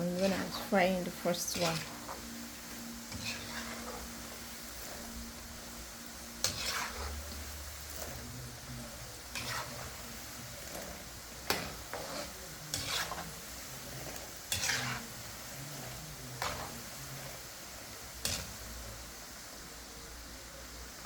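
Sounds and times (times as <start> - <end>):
dough deep-frying in hot oil: 0.0 - 21.0
spoon scraping a pot: 1.5 - 2.3, 3.0 - 5.2, 6.4 - 8.3, 9.3 - 17.5.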